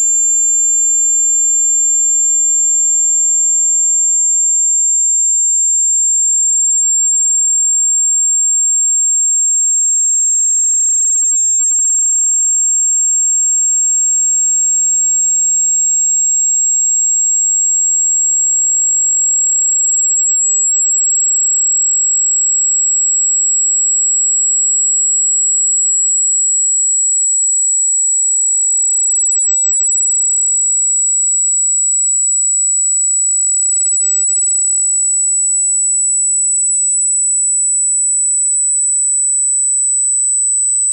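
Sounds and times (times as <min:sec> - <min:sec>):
high sine tone sweeping upward: 0:00.1 - 0:20.2, 0:25.3 - 0:30.8.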